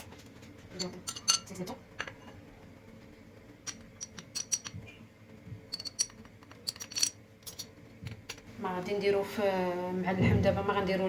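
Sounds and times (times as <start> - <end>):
utensils clinking on dishes: 0.7 - 2.2, 3.6 - 4.8, 5.7 - 7.7.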